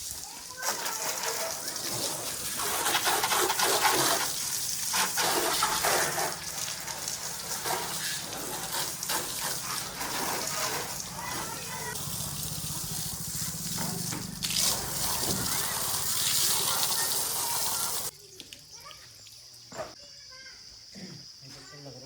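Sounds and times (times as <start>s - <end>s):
diesel engine running: 9.9s - 16.0s.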